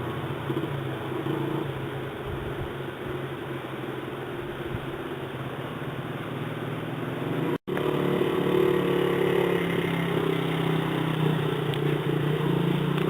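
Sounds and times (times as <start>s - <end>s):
dirt bike engine running: 5.9s - 13.0s.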